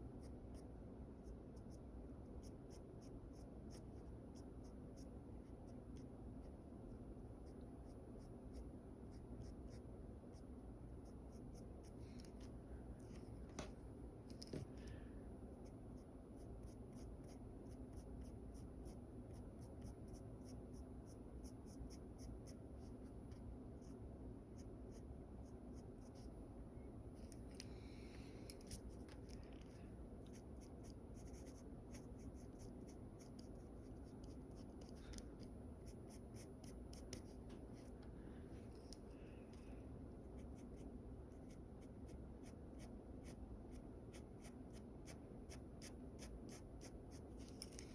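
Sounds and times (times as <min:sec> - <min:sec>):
pencil scratching on paper: 0:07.2 - 0:12.0, 0:15.6 - 0:26.3, 0:30.2 - 0:35.2, 0:35.8 - 0:38.0, 0:40.2 - 0:47.7.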